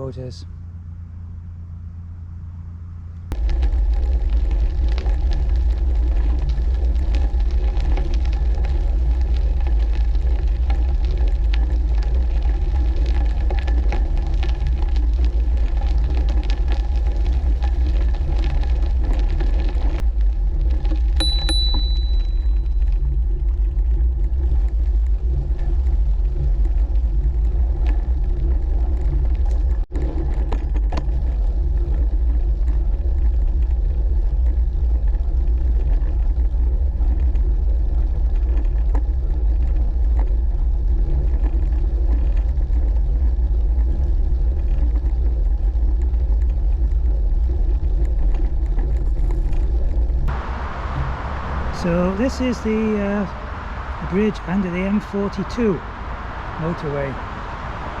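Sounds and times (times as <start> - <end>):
bicycle tyres on towpath: 3.0 - 58.0
wind on microphone: 21.0 - 54.4, 55.8 - 58.0.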